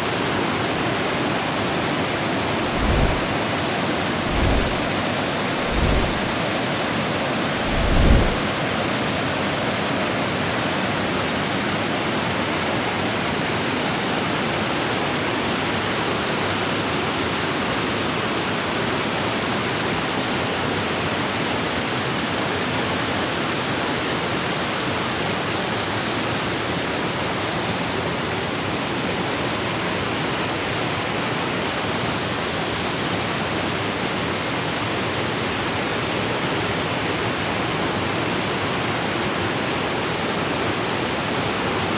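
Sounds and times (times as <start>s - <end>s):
thin high-pitched whine: 2.6s - 6.4s.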